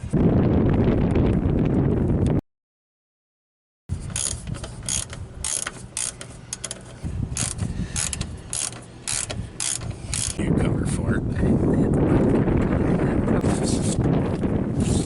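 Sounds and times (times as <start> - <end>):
ratchet wrench clicking: 4.0 - 10.4.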